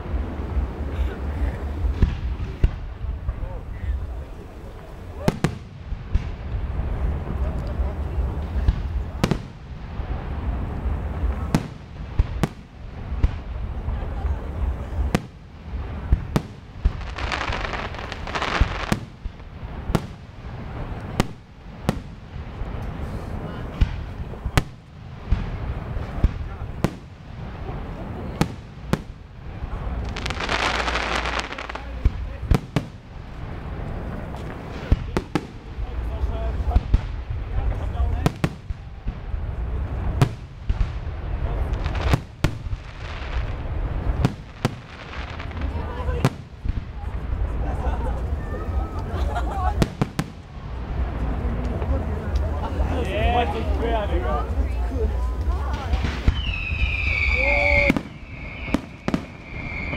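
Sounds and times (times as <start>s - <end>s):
low rumble: 0.0s - 30.9s
hissing crackle: 0.0s - 52.8s, 54.5s - 59.9s
firework bangs: 0.0s - 53.8s, 54.4s - 59.9s
firework shells bursting: 55.9s - 59.9s.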